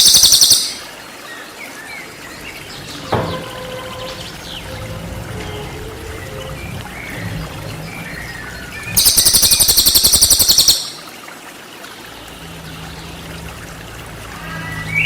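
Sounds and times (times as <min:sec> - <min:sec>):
rapid high bird trill: 0:00.0 - 0:00.9, 0:08.9 - 0:11.1
trickling water: 0:00.0 - 0:15.0.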